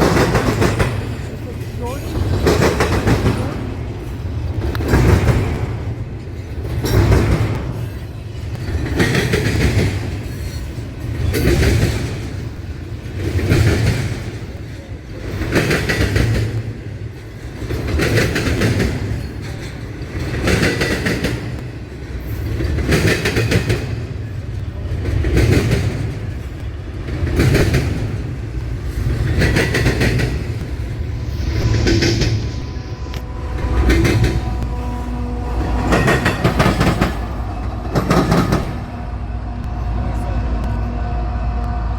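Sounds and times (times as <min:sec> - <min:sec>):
train wheels clattering over crossing: 0:00.0 - 0:41.9.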